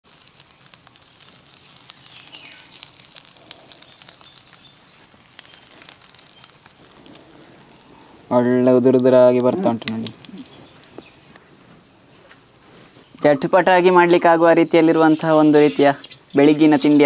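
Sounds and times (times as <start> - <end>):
light crackling clicks: 0.0 - 8.3, 9.0 - 11.4
birds chirping: 1.7 - 17.0.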